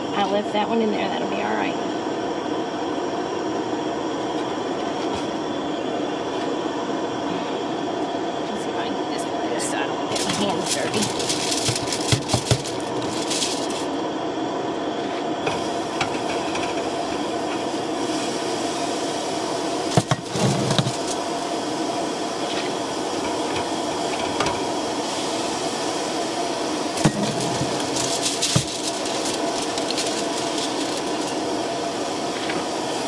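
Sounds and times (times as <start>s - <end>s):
burger patties sizzling in a pan: 15.5s - 33.0s.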